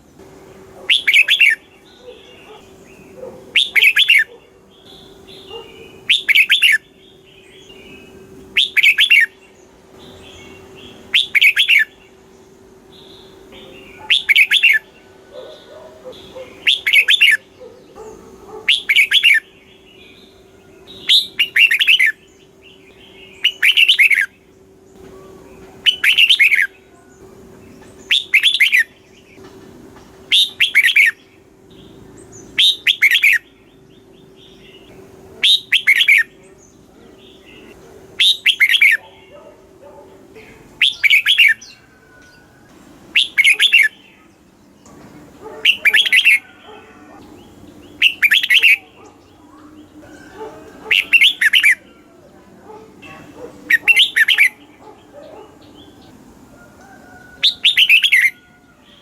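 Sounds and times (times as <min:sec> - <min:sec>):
bird whistled phrases: 0:00.9 - 0:02.6, 0:03.6 - 0:04.3, 0:04.9 - 0:06.9, 0:08.0 - 0:09.4, 0:10.6 - 0:12.0, 0:13.3 - 0:14.9, 0:16.2 - 0:17.5, 0:18.7 - 0:19.5, 0:21.0 - 0:22.2, 0:23.2 - 0:24.3, 0:25.1 - 0:26.8, 0:28.1 - 0:29.0, 0:30.3 - 0:31.2, 0:32.6 - 0:33.4, 0:35.4 - 0:36.4, 0:37.6 - 0:39.2, 0:40.8 - 0:42.5, 0:43.1 - 0:44.3, 0:45.6 - 0:46.8, 0:48.0 - 0:52.1, 0:53.7 - 0:54.6, 0:57.4 - 0:58.5.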